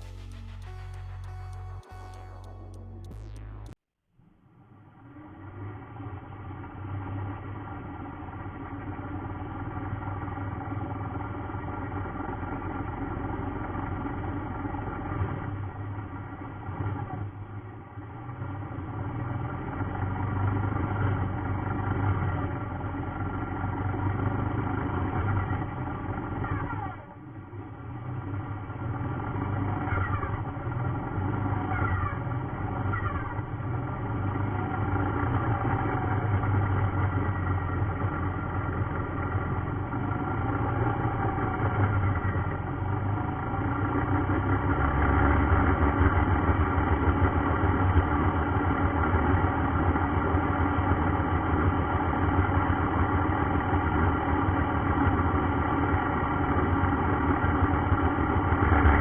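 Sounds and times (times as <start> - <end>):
low rumble: 0.0 - 3.8.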